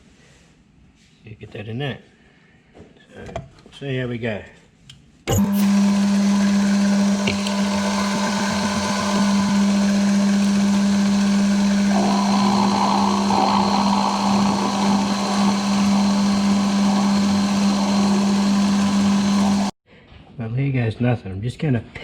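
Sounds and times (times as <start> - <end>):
machine tool motor hum: 5.3 - 19.8
rough high-pitched machining noise: 5.3 - 19.8.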